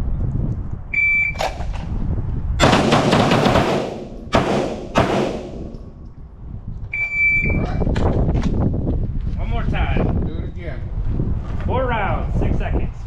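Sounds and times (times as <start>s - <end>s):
pistol shots with ringing tail: 2.6s - 6.0s
shot timer beep: 7.0s - 7.6s.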